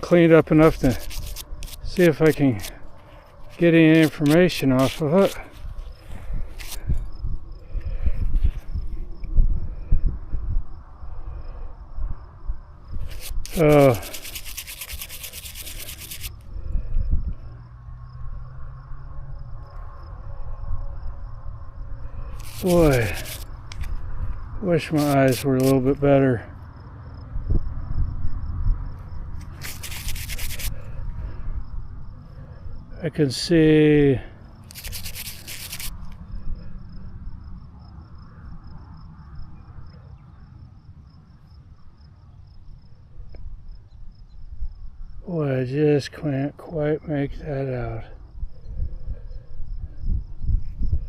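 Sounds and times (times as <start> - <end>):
rubbing dirt off toy car: 0.0 - 5.7, 13.0 - 16.4, 22.3 - 23.9, 24.7 - 26.0, 29.4 - 30.9, 34.6 - 36.2
insect chirping faintly: 0.2 - 51.0.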